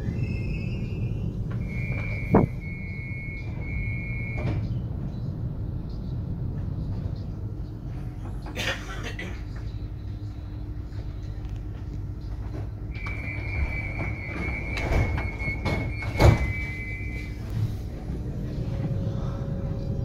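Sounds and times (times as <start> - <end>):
high squeal: 0.0 - 4.4
wheels rumbling on track: 0.0 - 20.0.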